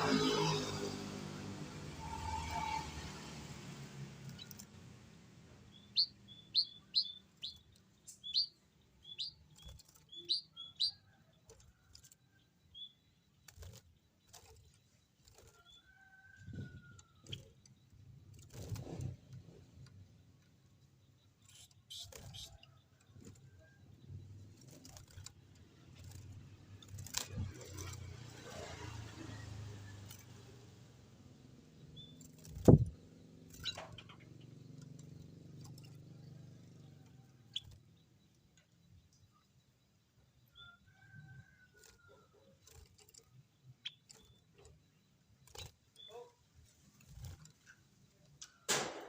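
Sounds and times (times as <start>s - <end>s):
short high bird chirps: 5.7s - 11.1s, 21.4s - 22.8s
faint short chirp: 40.4s - 48.6s.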